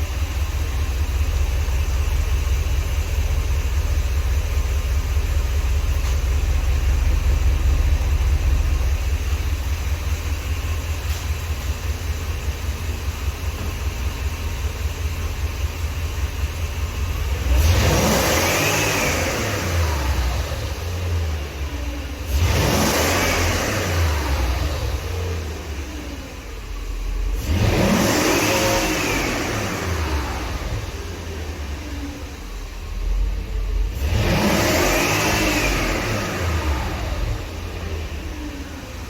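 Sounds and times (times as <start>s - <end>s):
car engine idling: 0.0s - 39.0s
engine revving: 16.2s - 26.6s, 27.2s - 39.0s.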